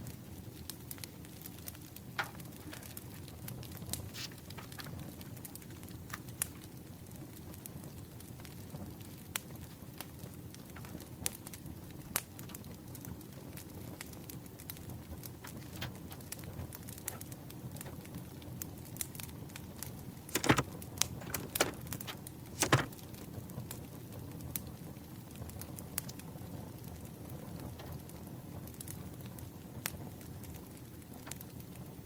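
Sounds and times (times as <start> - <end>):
paper handling sounds: 20.4 - 23.0.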